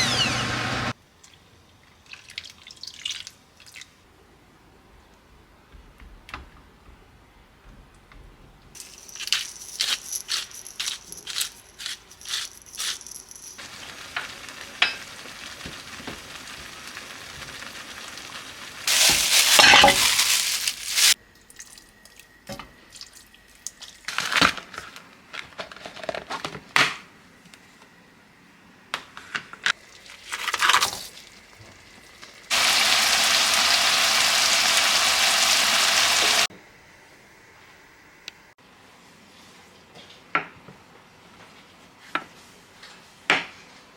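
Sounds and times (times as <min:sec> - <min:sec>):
scraping and rustling: 0:08.8 - 0:13.6, 0:18.9 - 0:21.2
utensils clicking and clinking: 0:08.8 - 0:13.6, 0:18.9 - 0:21.2
steady hiss: 0:18.8 - 0:21.2.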